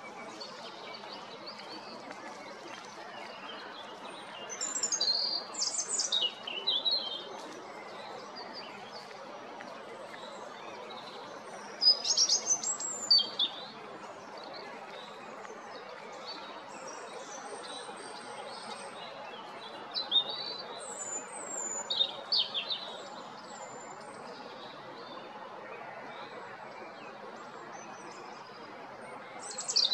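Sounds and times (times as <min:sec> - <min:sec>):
robin singing: 0:04.4 - 0:07.2, 0:11.6 - 0:13.7, 0:29.4 - 0:29.9.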